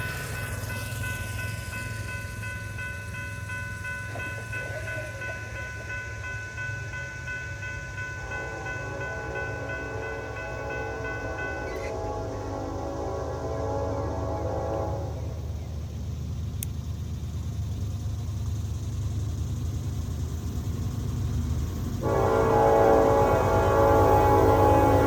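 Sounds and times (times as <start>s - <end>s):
steady high tones: 0.0s - 13.8s
diesel train engine rumble: 0.0s - 25.0s
chord of lower horn tones: 8.2s - 15.5s, 22.0s - 25.0s.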